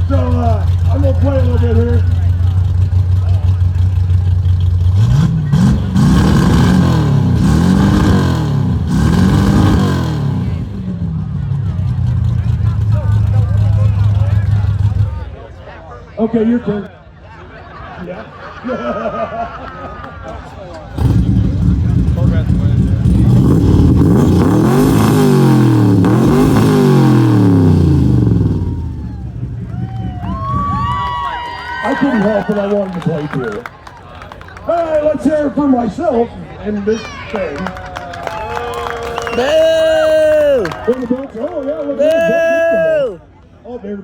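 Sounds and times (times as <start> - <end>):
race car engine revving: 0.0 - 15.3, 20.8 - 33.7.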